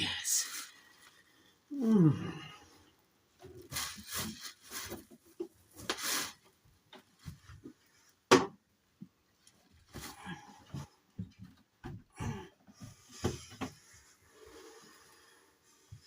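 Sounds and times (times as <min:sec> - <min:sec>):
packaging rubbing and scraping: 0:03.6 - 0:05.2.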